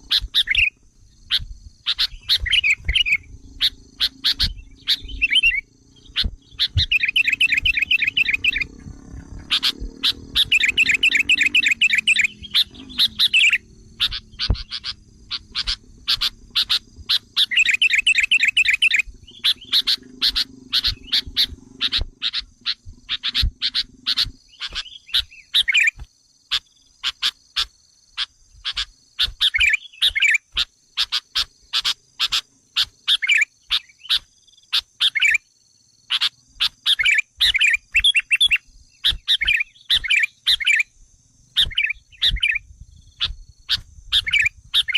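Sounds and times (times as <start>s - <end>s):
low hum: 0.0s - 25.4s
bird chirping and chattering: 0.0s - 35.4s, 36.1s - 40.9s, 41.5s - 44.9s.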